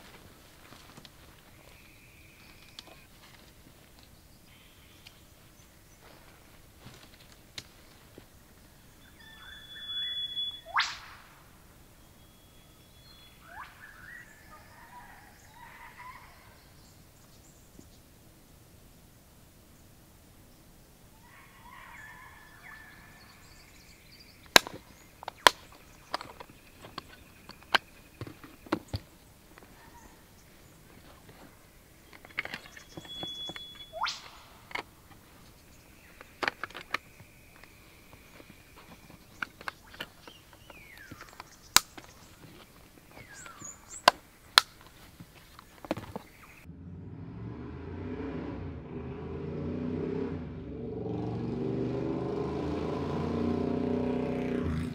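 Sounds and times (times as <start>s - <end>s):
short falling whistles: 9.1s - 11.3s, 32.8s - 34.4s.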